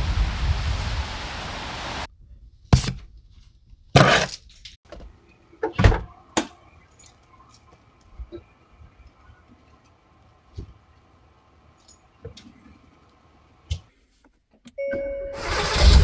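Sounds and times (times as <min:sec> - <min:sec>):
scraping thump: 0:02.8 - 0:03.0, 0:04.0 - 0:04.4.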